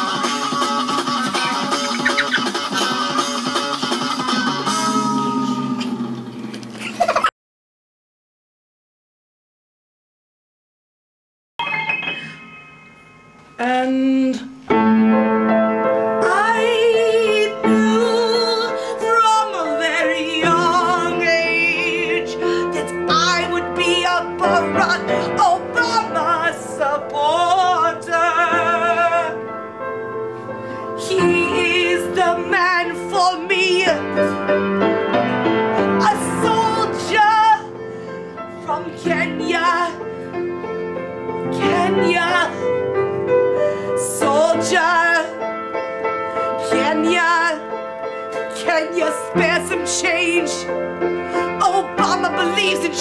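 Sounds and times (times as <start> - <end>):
piano accompaniment: 0.0 - 6.7, 11.6 - 53.0
woman singing operatically: 13.6 - 14.6, 16.2 - 29.4, 31.0 - 34.1, 36.0 - 37.7, 38.7 - 40.0, 41.5 - 42.6, 44.0 - 45.4, 46.6 - 47.6, 48.5 - 50.7, 51.6 - 53.0.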